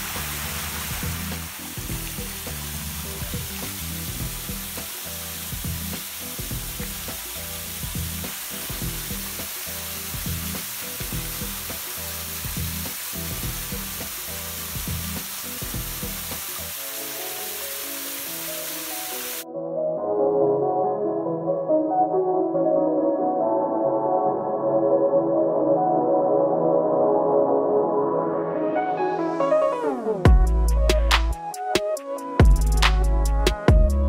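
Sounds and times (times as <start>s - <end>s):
flowing water hiss: 0.0s - 19.4s
background music with beat: 0.0s - 19.9s, 27.2s - 34.0s.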